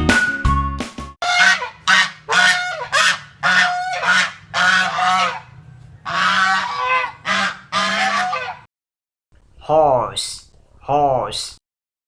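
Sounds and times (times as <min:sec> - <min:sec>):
goose honking: 0:01.2 - 0:08.7.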